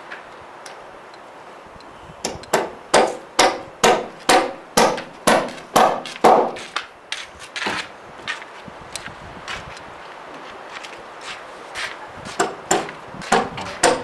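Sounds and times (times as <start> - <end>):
hammer striking timber: 2.2 - 6.8, 12.4 - 14.0.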